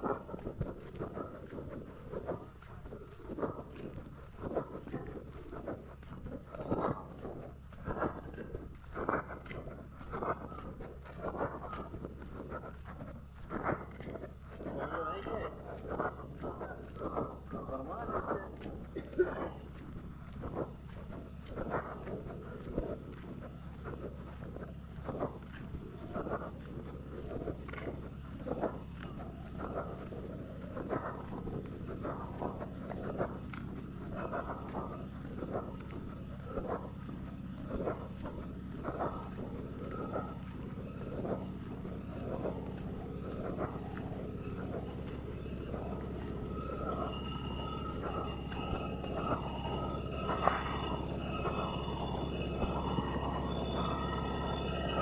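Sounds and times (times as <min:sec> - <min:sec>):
train rumble: 0:00.0 - 0:55.0
faint high steady tones: 0:38.4 - 0:55.0.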